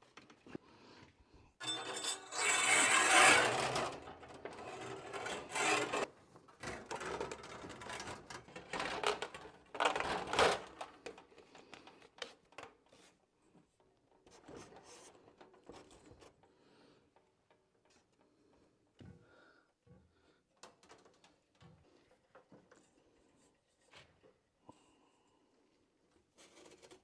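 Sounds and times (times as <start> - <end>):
scraping and rubbing: 1.6 - 6.1.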